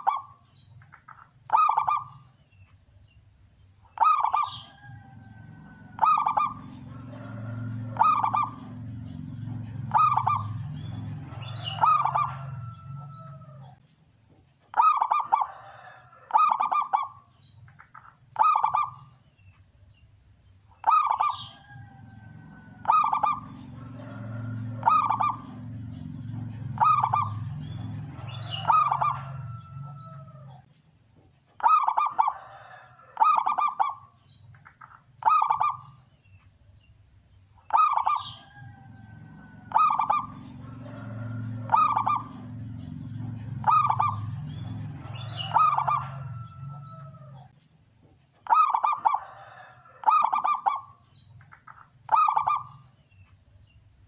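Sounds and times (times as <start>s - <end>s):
dove cooing: 0.0s - 2.3s, 3.9s - 13.8s, 14.7s - 17.2s, 18.4s - 19.0s, 20.8s - 30.6s, 31.6s - 34.1s, 34.8s - 36.0s, 37.7s - 47.6s, 48.5s - 52.8s
low rumble: 5.0s - 13.8s, 22.0s - 30.6s.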